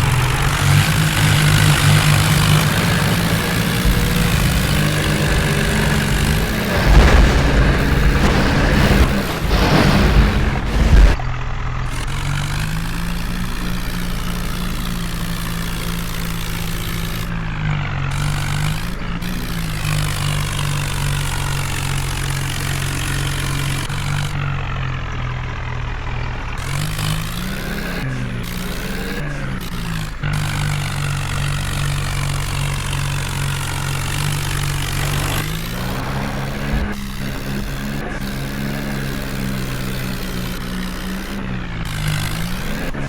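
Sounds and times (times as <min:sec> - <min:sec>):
heavy diesel engine running: 0:00.0 - 0:43.0
loud rush of noise: 0:01.0 - 0:11.2, 0:34.5 - 0:37.7.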